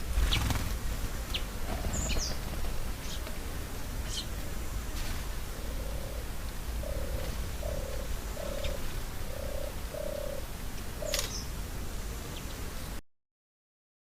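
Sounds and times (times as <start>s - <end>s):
bird calling low notes: 5.5s - 11.4s.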